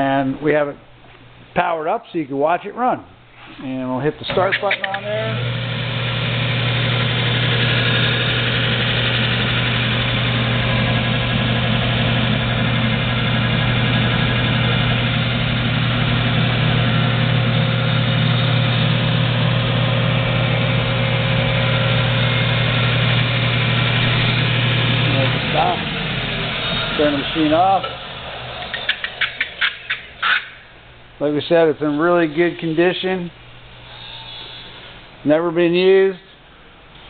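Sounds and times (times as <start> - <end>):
sander motor humming and whirring: 5.4 - 28.7.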